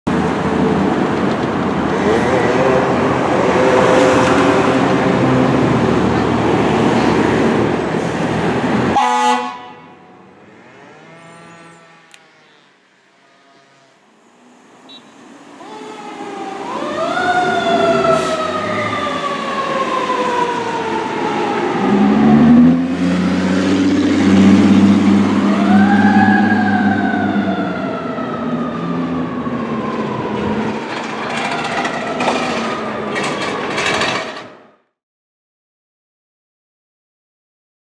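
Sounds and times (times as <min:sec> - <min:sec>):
fire engine siren: 0:01.9 - 0:10.4, 0:14.8 - 0:34.8
deep steady horn: 0:08.9 - 0:10.2.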